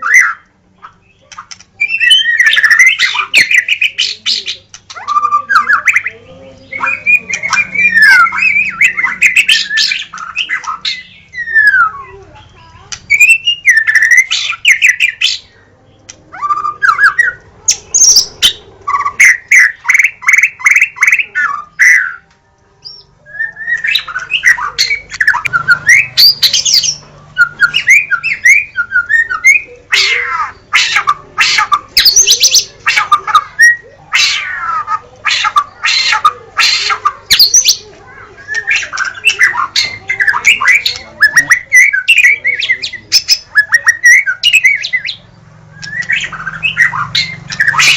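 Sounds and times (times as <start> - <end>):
songbird singing whistles: 0.0 - 6.2, 6.8 - 12.2, 13.1 - 15.5, 16.4 - 47.9.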